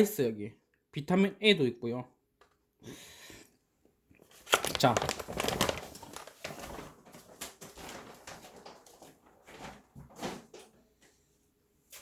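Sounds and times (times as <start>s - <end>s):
plastic packaging crinkling: 4.3s - 9.9s.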